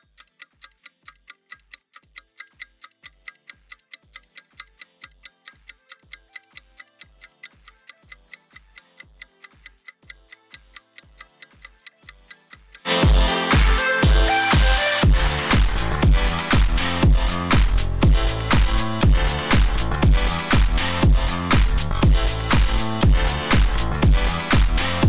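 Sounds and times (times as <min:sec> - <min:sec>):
hi-hat ticks: 0:00.0 - 0:12.9, 0:15.1 - 0:23.4
electronic backing track: 0:10.1 - 0:25.0
kick drum: 0:13.0 - 0:24.9.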